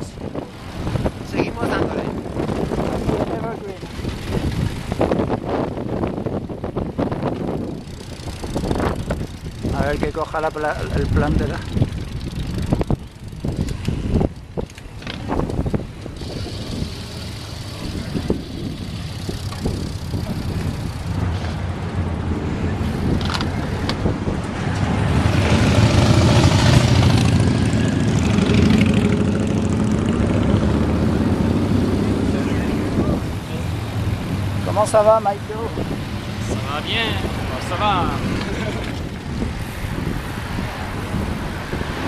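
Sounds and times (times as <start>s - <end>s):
wind and road noise: 0.0s - 42.0s.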